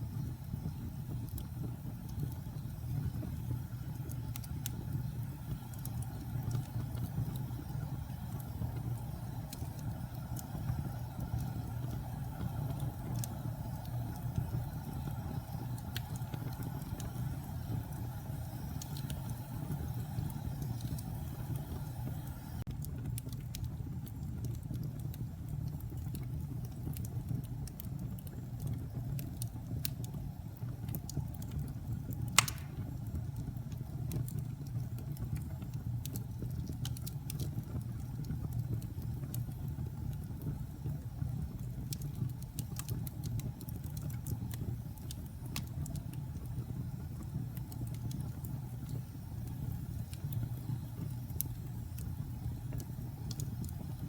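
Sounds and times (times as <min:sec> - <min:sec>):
wood fire crackling: 0:00.0 - 0:54.0
sharp loud pop: 0:32.4 - 0:32.8.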